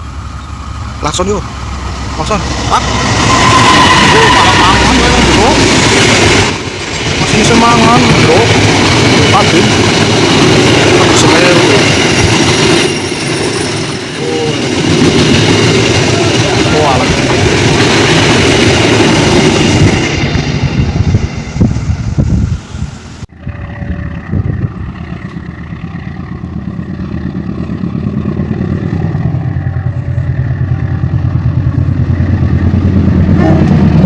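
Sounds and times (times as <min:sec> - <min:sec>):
train rumbling past: 0:00.0 - 0:34.0
road vehicle engines running: 0:23.4 - 0:34.0.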